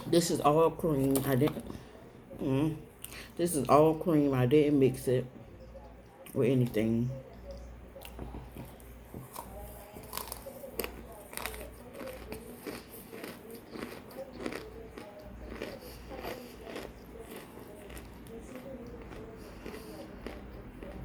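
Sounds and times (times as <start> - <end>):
crunchy chewing of frozen cream: 6.2 - 21.0.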